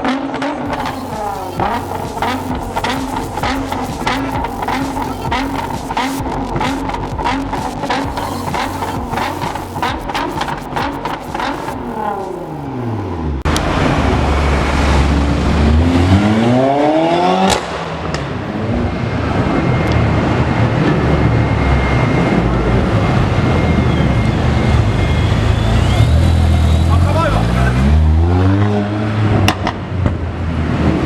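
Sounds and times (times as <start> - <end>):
car exhaust rumble: 0.7 - 16.0.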